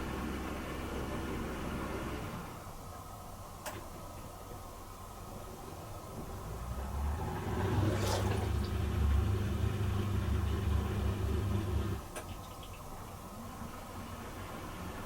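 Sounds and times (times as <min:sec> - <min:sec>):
dishwasher pump humming: 0:05.5 - 0:14.6
water hissing: 0:06.4 - 0:11.9.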